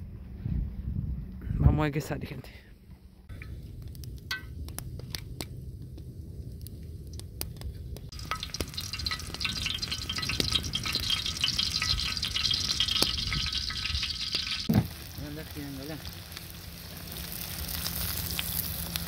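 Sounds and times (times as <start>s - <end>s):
food sizzling on hot metal: 8.1s - 19.0s.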